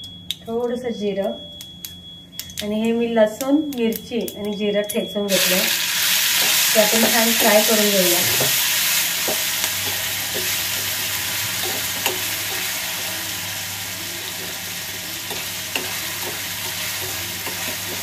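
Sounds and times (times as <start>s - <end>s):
spices sizzling in hot oil: 5.3s - 18.0s.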